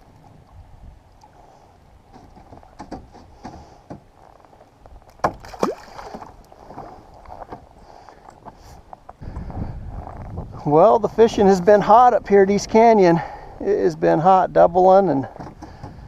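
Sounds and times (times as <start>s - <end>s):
water: 0.0s - 9.0s
wind: 0.0s - 16.0s.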